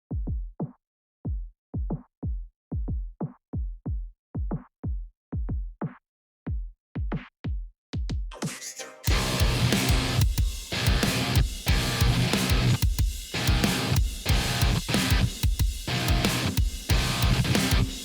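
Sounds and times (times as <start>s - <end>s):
drum machine kick drums: 0.1s - 8.4s, 9.1s - 18.0s
full band with guitar: 9.1s - 18.0s.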